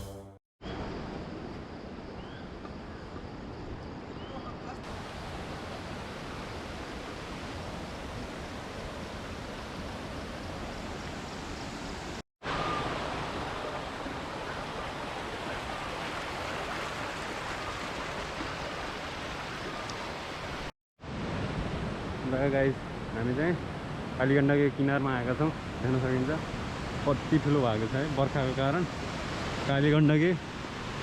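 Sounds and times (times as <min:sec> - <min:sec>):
river rushing: 0:04.9 - 0:21.6.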